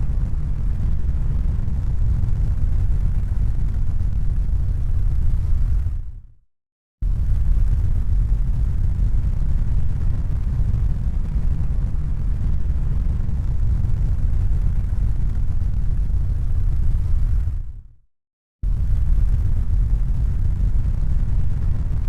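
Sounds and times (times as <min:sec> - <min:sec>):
deep rumbling noise: 0:07.0 - 0:17.8, 0:18.6 - 0:22.0.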